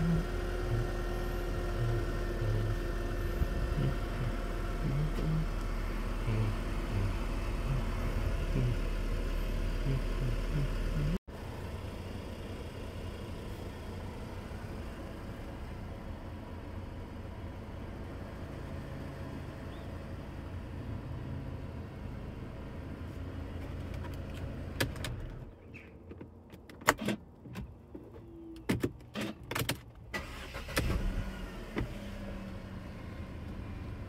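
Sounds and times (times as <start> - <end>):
car engine running: 0.0 - 26.4
key and ignition clicks: 28.6 - 30.8
engine cranking and starting: 29.0 - 32.4.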